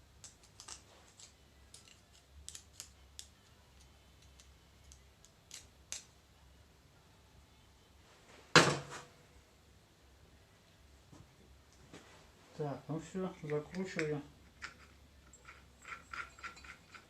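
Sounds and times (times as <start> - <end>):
metal parts clicking and tapping: 13.4 - 17.0.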